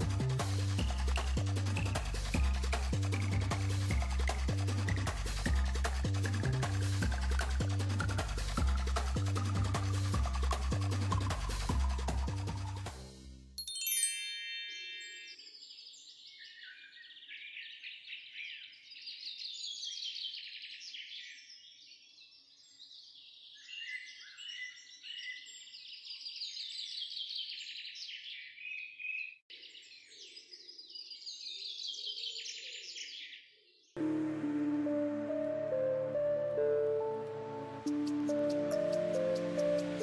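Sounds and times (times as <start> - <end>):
songbirds chirping and trilling: 14.7 - 40.0.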